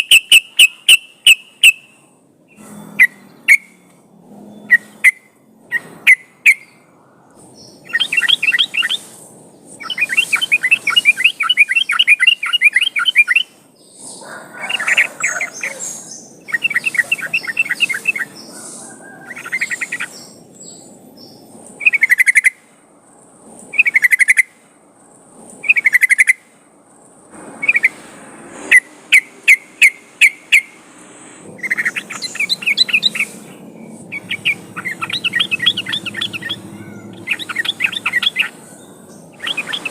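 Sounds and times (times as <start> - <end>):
bulbul singing chattering trills: 4.5 - 22.6, 23.7 - 24.6, 25.6 - 26.4, 31.6 - 39.9.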